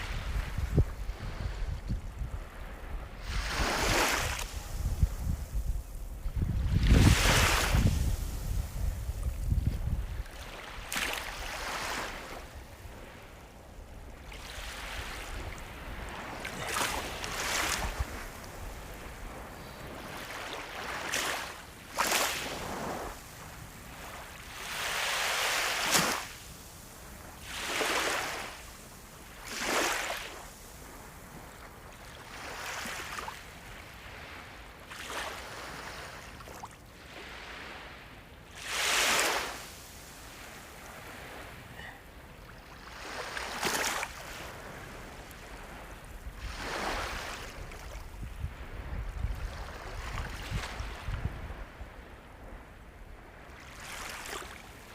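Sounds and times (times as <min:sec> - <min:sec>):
sea waves breaking: 0:00.0 - 0:33.4, 0:34.1 - 0:51.8, 0:53.3 - 0:54.9.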